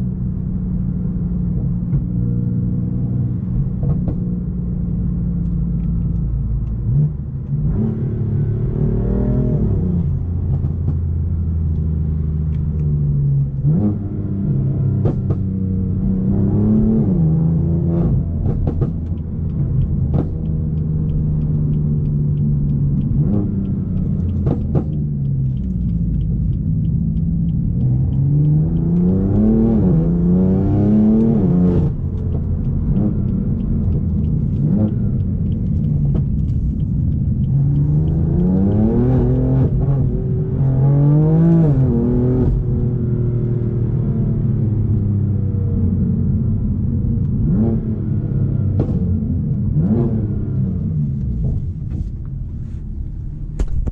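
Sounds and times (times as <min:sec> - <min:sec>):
car engine revving while driving: 0:00.0 - 0:53.9
exhaust cracks: 0:17.9 - 0:43.4, 0:48.4 - 0:53.9.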